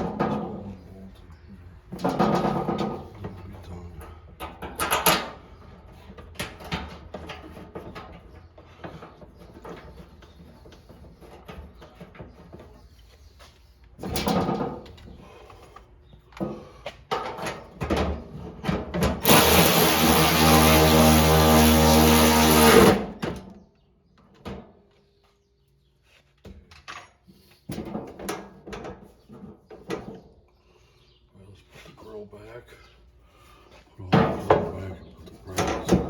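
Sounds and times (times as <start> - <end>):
knocks and clatters of tools: 0.0 - 0.7, 1.8 - 12.9, 14.0 - 23.5, 26.4 - 30.3, 34.1 - 36.0
power drill motor running: 19.2 - 23.2.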